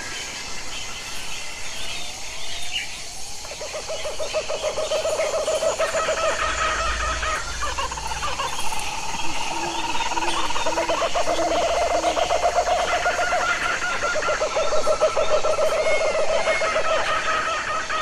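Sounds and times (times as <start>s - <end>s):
bird chirps: 1.7s - 17.4s
long low bird trill: 4.0s - 14.2s
short rising bird calls: 4.9s - 12.1s.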